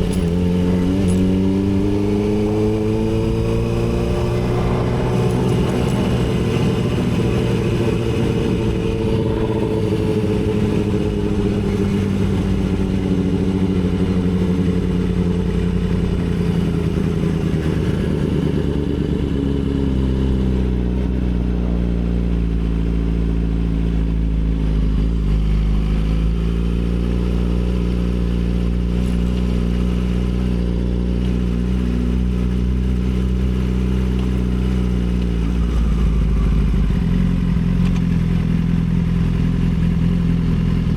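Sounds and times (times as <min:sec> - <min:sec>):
sport bike engine rumbling: 0:00.0 - 0:40.9.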